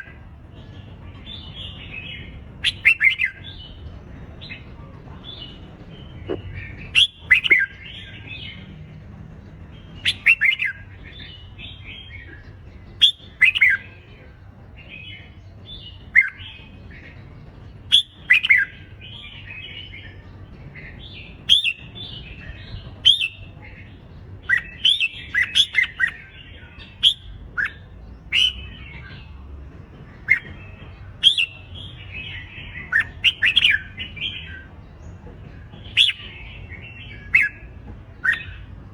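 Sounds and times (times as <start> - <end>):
bird song warbled phrases: 0.0 - 38.9.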